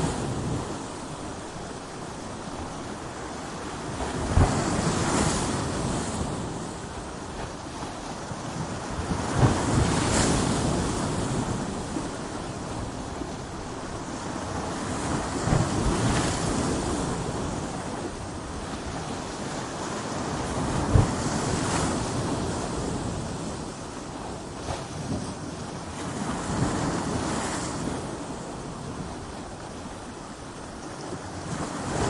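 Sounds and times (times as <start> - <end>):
surf roaring: 0.0 - 32.0
wind rumble on microphone: 0.0 - 32.0.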